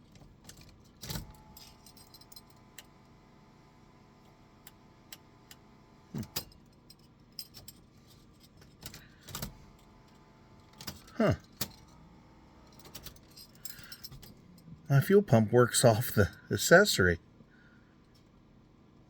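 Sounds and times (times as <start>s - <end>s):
car keys jangling and clicking: 0.0s - 2.8s, 6.2s - 9.4s, 12.6s - 14.7s.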